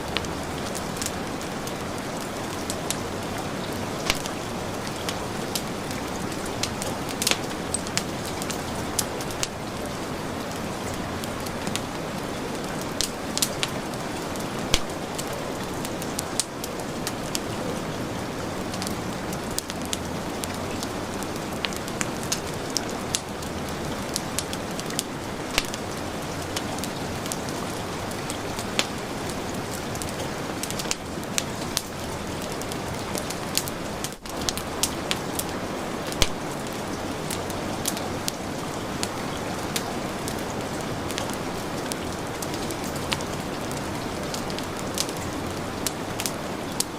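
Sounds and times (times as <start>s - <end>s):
heavy rain hiss: 0.0s - 46.9s
wood fire crackling and popping: 0.0s - 46.9s.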